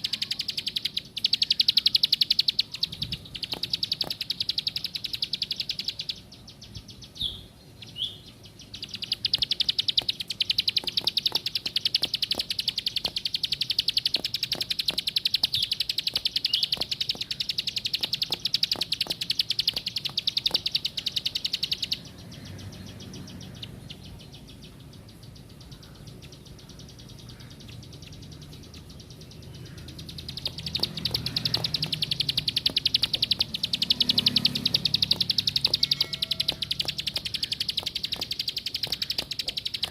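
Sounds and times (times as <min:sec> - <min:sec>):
small bird singing buzzy notes: 0:00.0 - 0:39.9.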